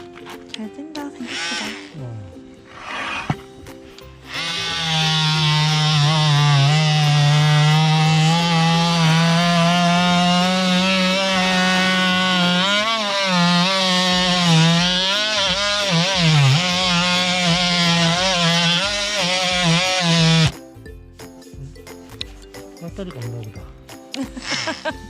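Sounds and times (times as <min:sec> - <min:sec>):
oscillating multi-tool cutting wood: 0:01.2 - 0:02.0, 0:02.7 - 0:20.6, 0:24.2 - 0:25.0.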